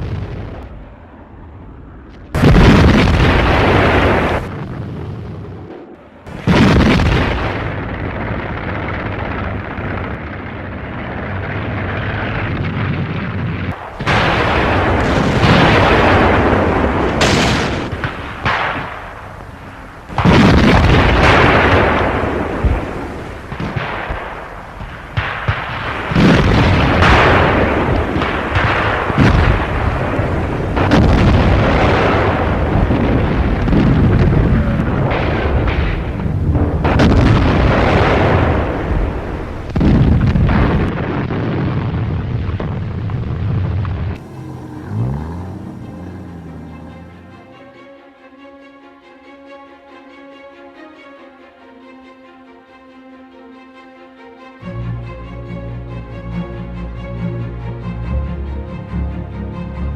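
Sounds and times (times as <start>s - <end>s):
tank cannon shots rumbling: 2.2s - 47.7s.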